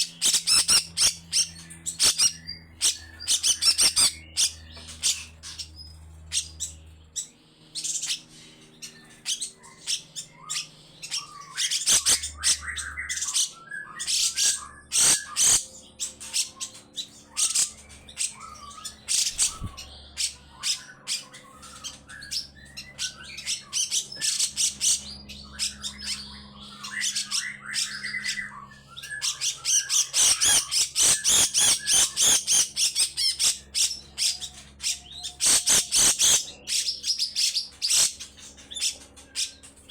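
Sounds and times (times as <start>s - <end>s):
bird rasping chattering calls: 0.0s - 5.7s, 29.2s - 34.4s, 35.2s - 39.6s.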